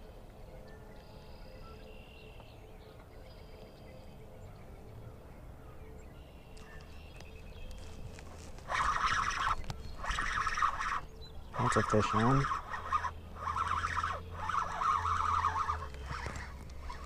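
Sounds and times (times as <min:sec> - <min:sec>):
low steady rumble: 0:02.7 - 0:17.0
high whistling bird calls: 0:06.2 - 0:17.0
loud rasping rustling: 0:07.8 - 0:17.0.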